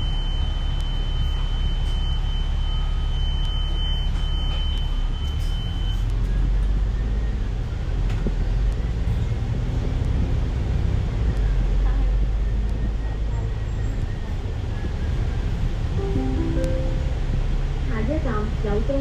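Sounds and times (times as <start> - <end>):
bus engine and road rumble: 0.0 - 16.0, 17.1 - 19.0
thin high tone: 16.0 - 17.7.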